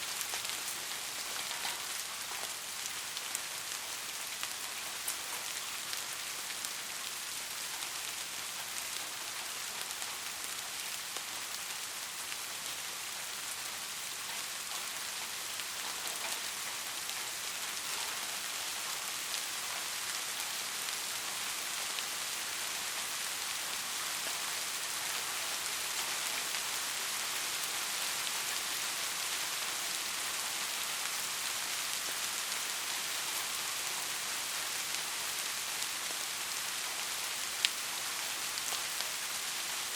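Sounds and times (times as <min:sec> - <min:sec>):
rain falling: 0:00.0 - 0:39.9
raindrop ticks: 0:00.1 - 0:06.6, 0:13.6 - 0:22.1.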